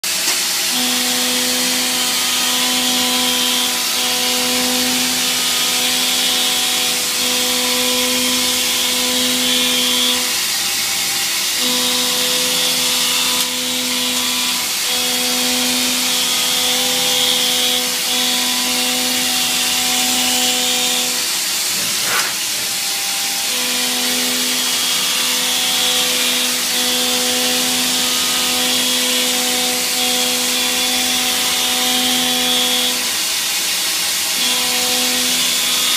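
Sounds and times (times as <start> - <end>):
milling machine cutting whine: 0.1 - 35.9.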